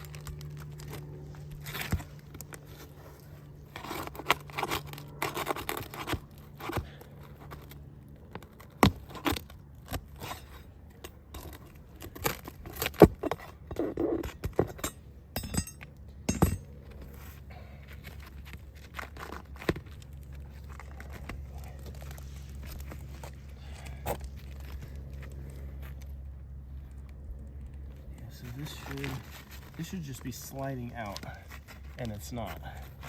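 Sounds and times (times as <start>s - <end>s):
roof shingles scraping and tearing: 0.0s - 14.7s, 28.3s - 33.0s.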